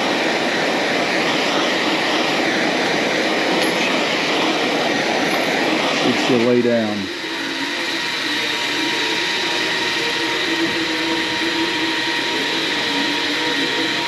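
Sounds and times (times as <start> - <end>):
heating tool hissing: 3.4 - 14.0.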